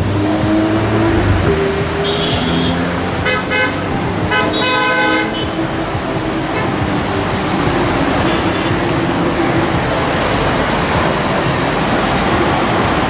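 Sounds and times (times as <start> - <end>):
traffic engine and road noise: 0.0 - 13.0
car horns honking: 0.9 - 9.4.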